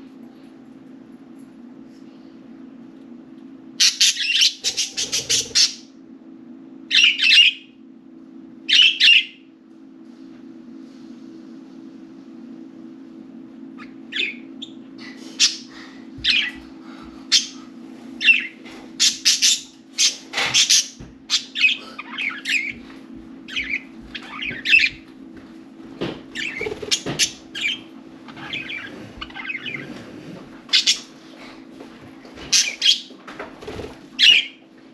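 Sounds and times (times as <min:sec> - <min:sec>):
steady low hum: 0:00.0 - 0:34.9
budgerigars chirping and chattering: 0:03.8 - 0:05.8, 0:13.8 - 0:14.4, 0:15.4 - 0:16.6, 0:18.2 - 0:22.8, 0:26.4 - 0:30.0, 0:30.7 - 0:31.1, 0:32.5 - 0:33.1, 0:34.2 - 0:34.6.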